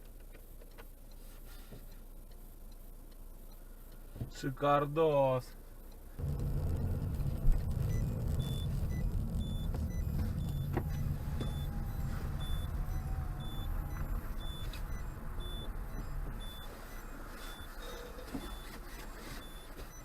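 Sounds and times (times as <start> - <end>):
car engine and road rumble: 0.0 - 20.0
short electronic beep: 6.6 - 20.0.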